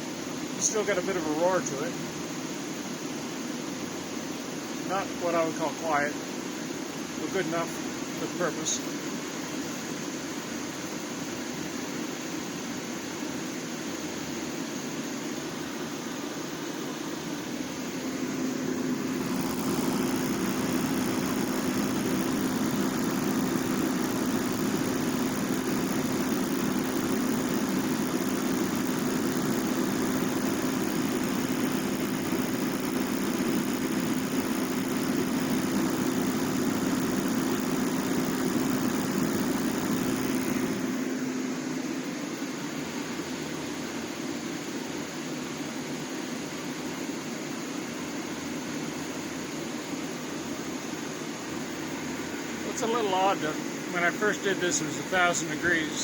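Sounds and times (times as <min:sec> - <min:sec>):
propane heater burner roar: 0:00.0 - 0:56.0
constant hum: 0:00.2 - 0:44.1, 0:50.4 - 0:56.0.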